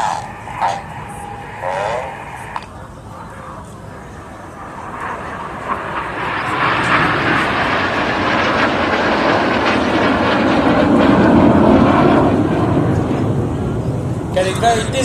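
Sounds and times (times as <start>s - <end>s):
jet aircraft flying low: 0.0s - 15.0s.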